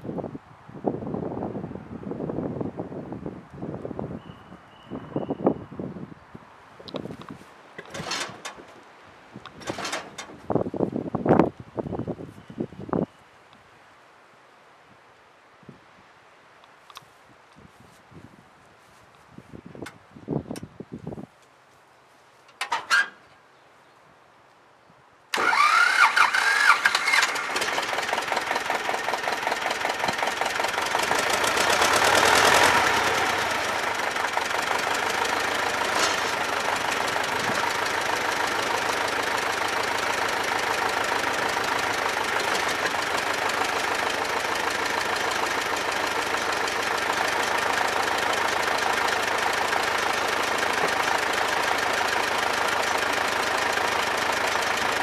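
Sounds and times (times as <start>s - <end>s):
diesel tractor engine starting and idling: 7.8s - 8.8s, 9.4s - 10.5s, 25.3s - 55.0s.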